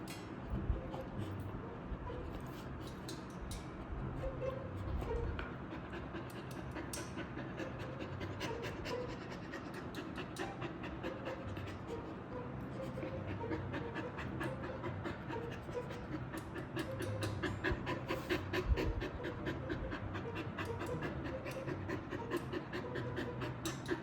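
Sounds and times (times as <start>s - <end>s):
dog panting rapidly: 0.5s - 24.0s.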